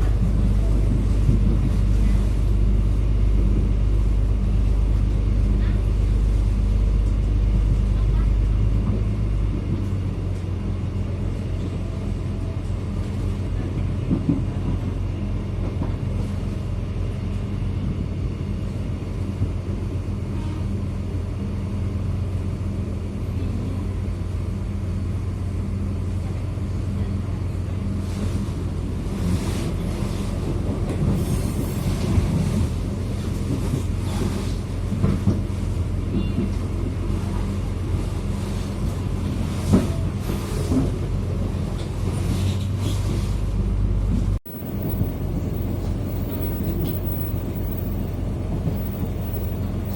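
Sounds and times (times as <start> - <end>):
train hum and rumble: 0.0 - 49.9
wheels clattering on track: 44.1 - 49.9.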